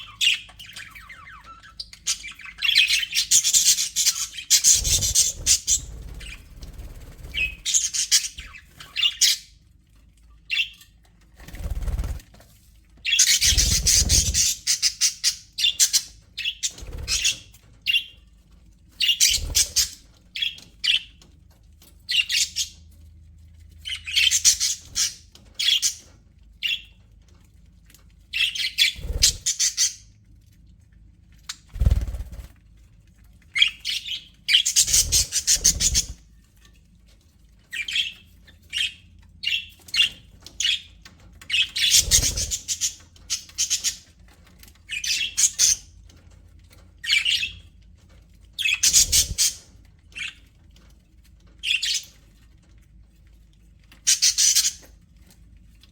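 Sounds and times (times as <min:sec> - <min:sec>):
budgerigars chirping and squawking: 0:00.0 - 0:09.6, 0:10.4 - 0:12.2, 0:13.0 - 0:18.2, 0:18.9 - 0:22.9, 0:23.8 - 0:27.0, 0:28.3 - 0:30.2, 0:33.5 - 0:36.2, 0:37.7 - 0:46.0, 0:46.7 - 0:47.7, 0:48.5 - 0:50.9, 0:51.6 - 0:52.4, 0:53.9 - 0:55.4.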